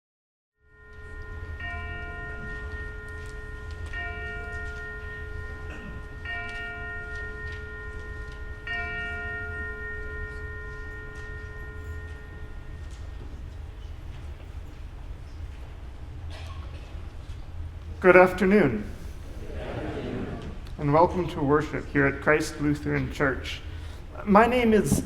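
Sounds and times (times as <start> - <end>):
church bell tolling: 0.6 - 15.0, 18.0 - 19.2, 21.5 - 25.0.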